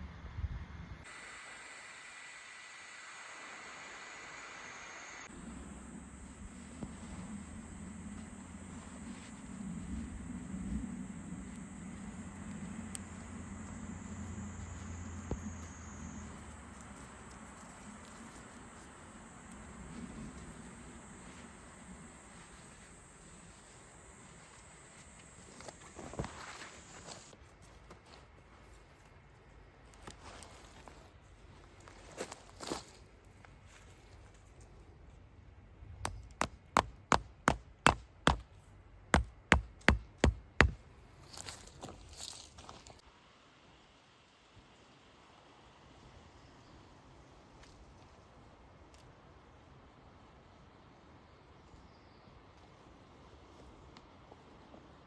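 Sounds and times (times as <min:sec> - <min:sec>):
low hum: 0:00.0 - 0:27.3
insects trilling: 0:01.2 - 0:27.3.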